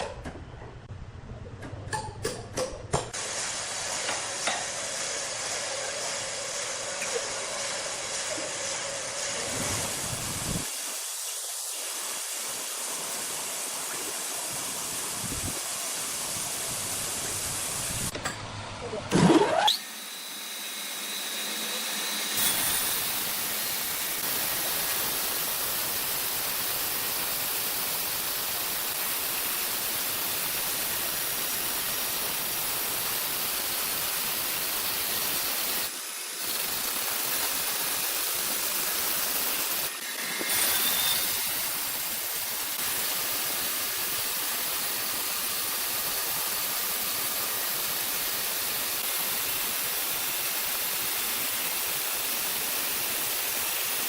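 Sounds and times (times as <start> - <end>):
high-pitched hissing machinery: 19.5 - 54.0.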